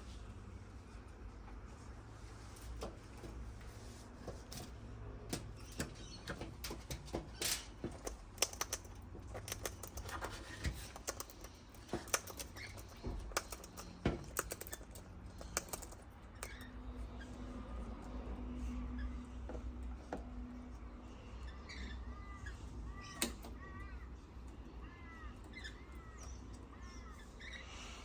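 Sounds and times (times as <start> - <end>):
beaks pecking on hard surface: 5.4 - 16.7.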